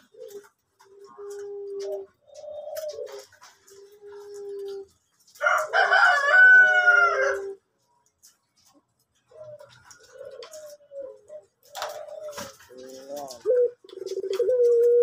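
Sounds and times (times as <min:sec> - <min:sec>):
dove cooing: 0:00.0 - 0:07.6, 0:09.2 - 0:15.0.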